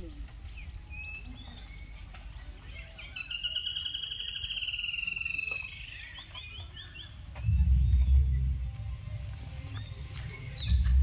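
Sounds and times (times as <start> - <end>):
bird trilling and chirping: 0.5 - 8.6
steady low rumble: 7.2 - 11.0.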